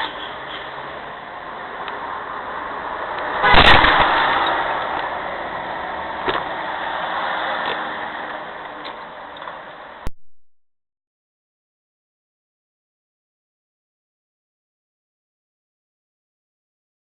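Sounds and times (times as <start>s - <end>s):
road and engine noise: 0.0s - 10.1s
vehicle collision crash: 3.4s - 4.7s.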